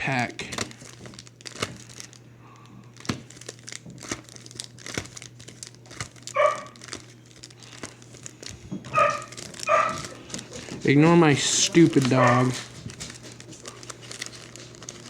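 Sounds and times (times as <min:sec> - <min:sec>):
card packs crinkling: 0:00.0 - 0:15.0
dog barking: 0:06.4 - 0:06.8, 0:08.9 - 0:10.2, 0:12.0 - 0:12.7.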